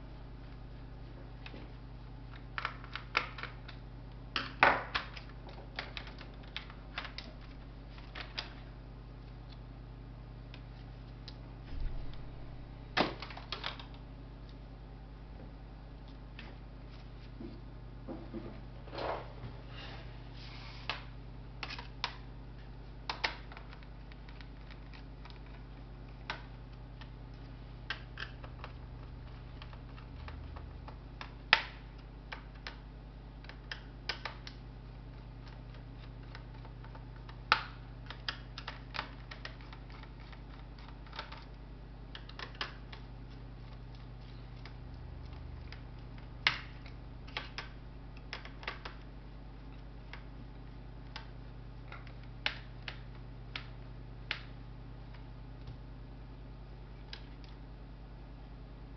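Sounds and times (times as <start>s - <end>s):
steady low hum: 0.0s - 58.9s
laptop parts and tools clicking: 23.1s - 54.5s.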